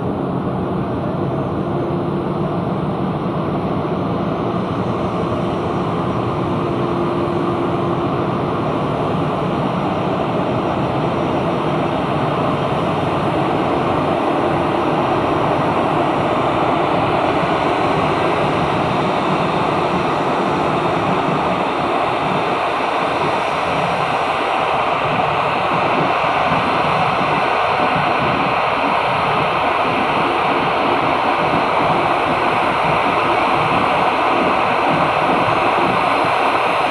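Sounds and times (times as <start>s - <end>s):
aircraft engine running: 0.0s - 36.9s.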